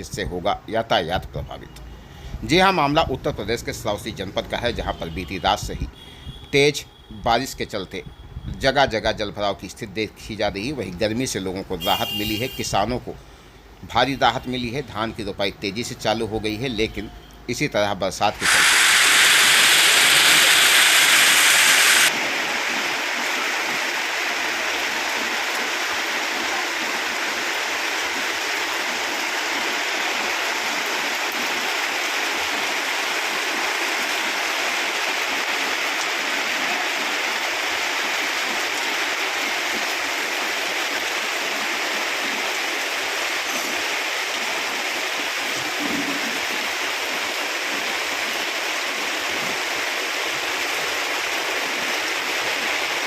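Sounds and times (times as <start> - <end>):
torrential rain: 3.6 - 53.0
rushing water: 18.3 - 53.0.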